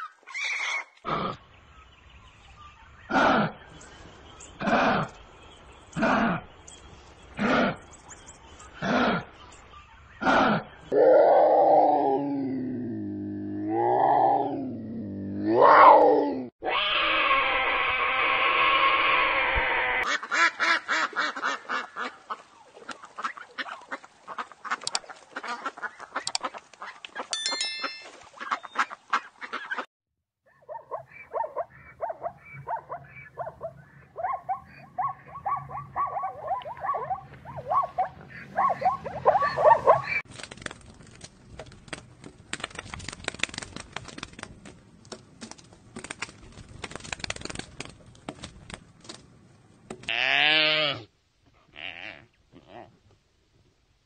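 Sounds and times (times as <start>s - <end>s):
fowl calling: 30.8s - 40.2s.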